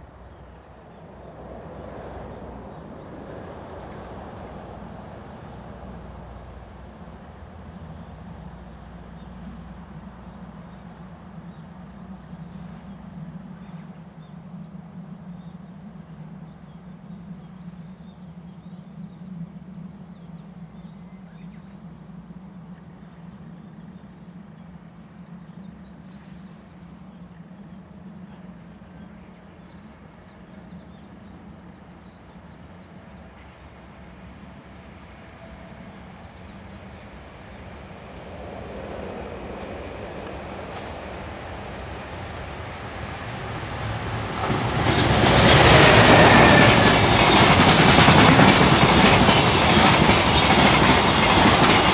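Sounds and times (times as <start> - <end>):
low rumble of rail traffic: 0.0 - 51.9
train approaching: 0.0 - 51.9.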